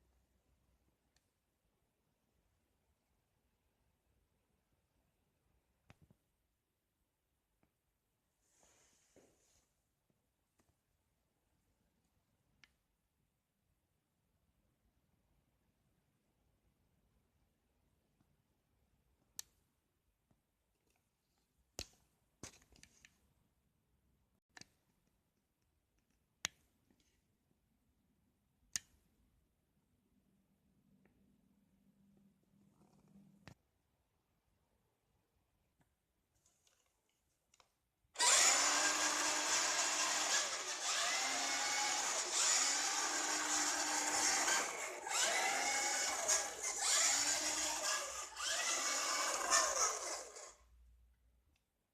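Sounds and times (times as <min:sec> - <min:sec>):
rc truck motor whining: 0:38.2 - 0:50.6.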